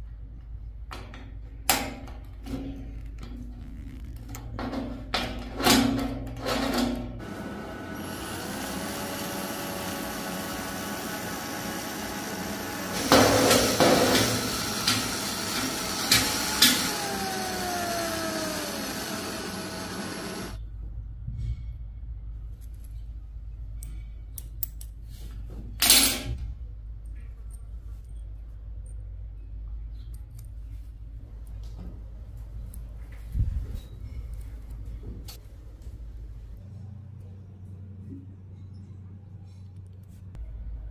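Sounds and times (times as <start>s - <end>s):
small motor machine running: 7.2s - 20.6s.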